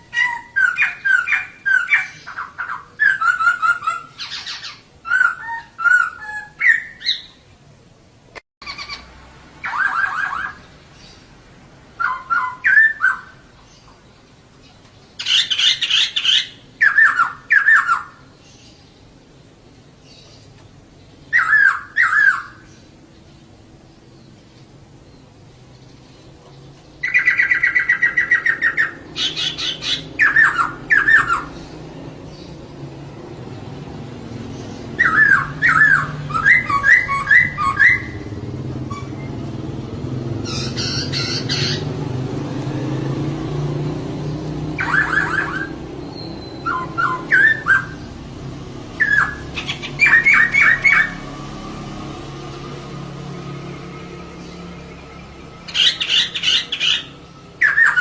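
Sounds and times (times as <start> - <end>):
bird calling in rapid trills: 0.0 - 7.4, 8.6 - 11.3, 11.9 - 18.7, 21.2 - 23.2, 26.9 - 32.6, 34.4 - 42.1, 44.7 - 48.3, 48.9 - 51.4, 54.3 - 58.0.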